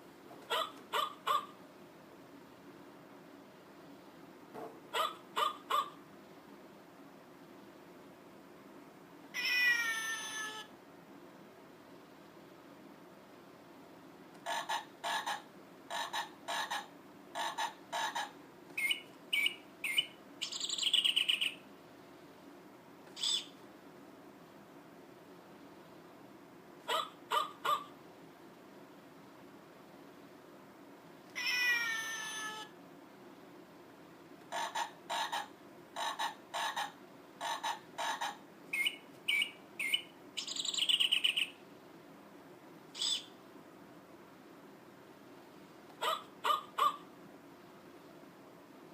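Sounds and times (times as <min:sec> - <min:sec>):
recorded animal calls: 0:00.5 - 0:01.6, 0:04.9 - 0:06.0, 0:14.4 - 0:21.6, 0:26.8 - 0:28.0, 0:34.4 - 0:41.6, 0:46.0 - 0:47.1
electronic bird chirps and trill: 0:14.5 - 0:21.6, 0:23.2 - 0:23.6, 0:34.5 - 0:41.6, 0:43.0 - 0:43.4.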